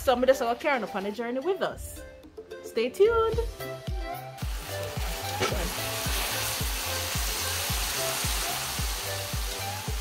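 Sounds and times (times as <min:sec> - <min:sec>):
background music with bass beat: 0:01.8 - 0:10.0
vegetables sizzling in a wok: 0:04.4 - 0:10.0.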